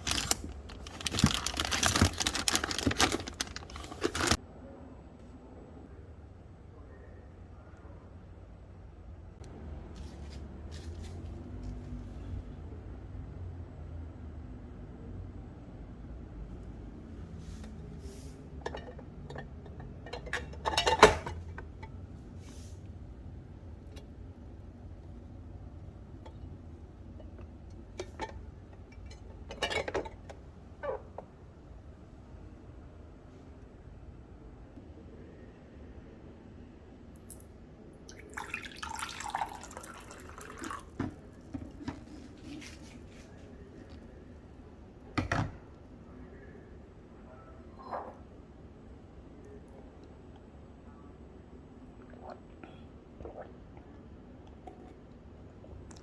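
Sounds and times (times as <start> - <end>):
kitchen containers clinking: 18.5 - 22.0, 27.9 - 30.4
soft rustles: 41.8 - 44.0.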